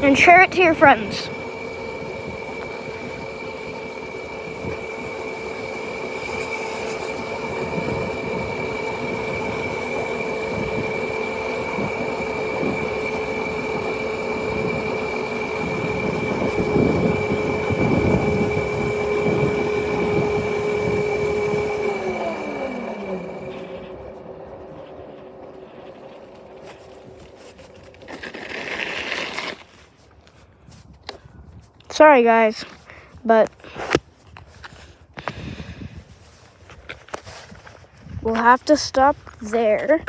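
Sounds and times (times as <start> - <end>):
motorcycle motor whine: 0.0 - 29.9
road and wind noise: 0.0 - 40.0.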